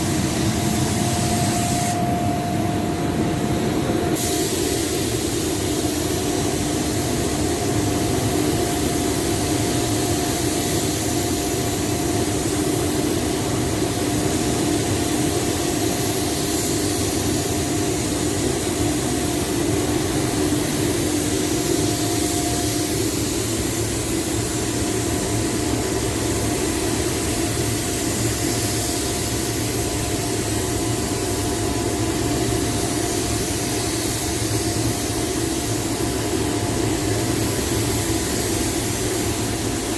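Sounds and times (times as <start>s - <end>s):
machine hum: 0.0s - 4.2s
spray painting hiss: 0.0s - 39.9s.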